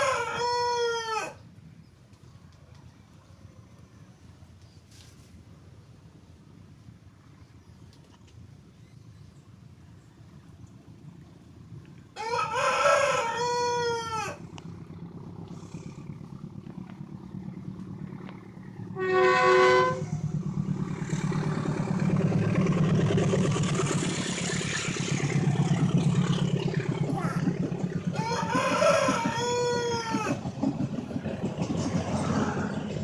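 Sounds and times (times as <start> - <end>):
rooster crowing: 0.0 - 1.4, 12.2 - 14.5, 27.9 - 30.4
passing train rumble: 0.0 - 33.0
train horn blast: 18.8 - 20.8.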